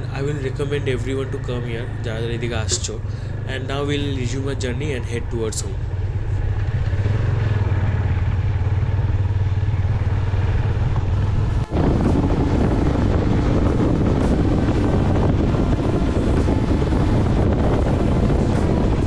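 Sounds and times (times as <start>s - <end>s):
motorcycle engine droning: 0.0s - 19.0s
wind on microphone: 9.8s - 19.0s.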